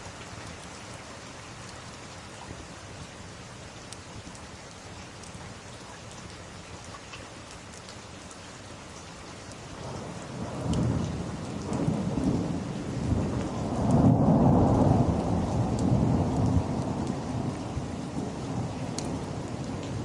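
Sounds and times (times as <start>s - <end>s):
steady rain: 0.0s - 20.0s
thunder rolling: 10.0s - 20.0s.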